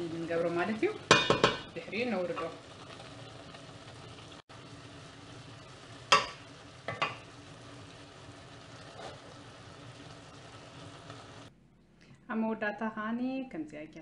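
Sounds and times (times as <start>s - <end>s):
food sizzling in a pan: 0.0s - 11.5s
utensil knocking against pan: 1.1s - 1.7s.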